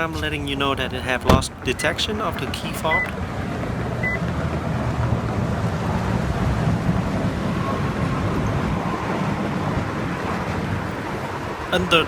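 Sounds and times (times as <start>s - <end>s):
wind buffeting microphone: 2.9s - 12.0s.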